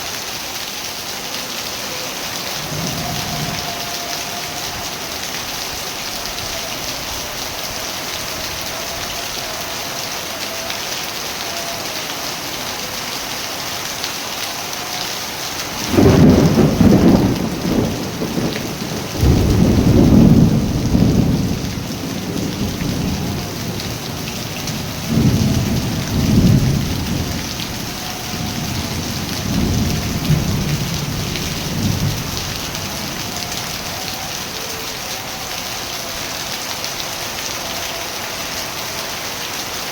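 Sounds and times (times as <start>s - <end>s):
steady rain: 0.0s - 39.9s
thunder rumbling: 2.1s - 10.0s, 15.6s - 34.6s.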